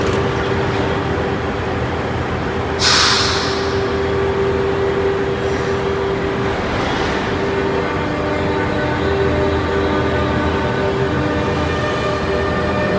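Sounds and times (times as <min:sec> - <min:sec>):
train electrical hum: 0:00.0 - 0:12.9
air brake hiss: 0:02.8 - 0:04.8.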